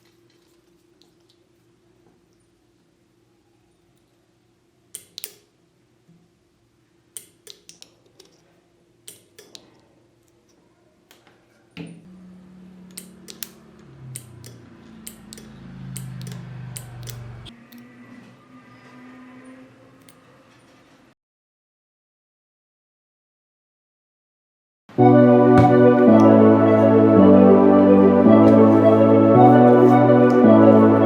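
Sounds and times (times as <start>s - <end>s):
louder low hum: 12.1s - 17.5s, 25.0s - 31.0s.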